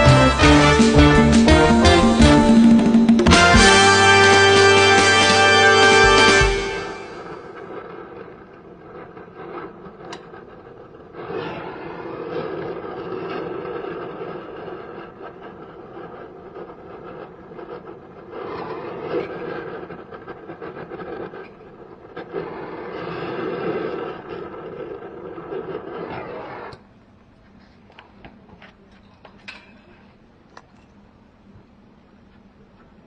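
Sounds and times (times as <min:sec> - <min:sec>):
machine buzzing coarsely: 0:00.0 - 0:07.9.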